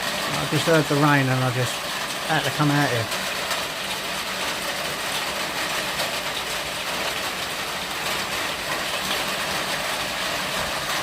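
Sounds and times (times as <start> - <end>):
heavy rain on a roof: 0.0 - 11.0.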